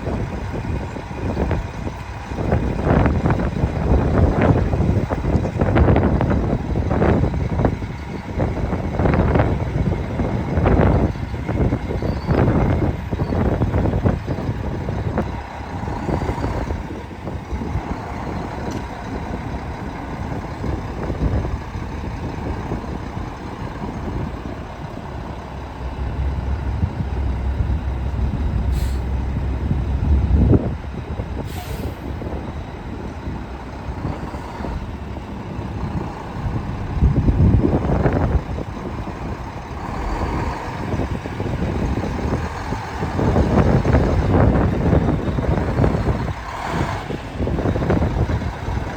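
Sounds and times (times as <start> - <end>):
diesel truck engine running: 0.0 - 48.9
heavy low rumble: 0.0 - 48.9
short hisses of air: 28.7 - 29.2, 31.4 - 32.1.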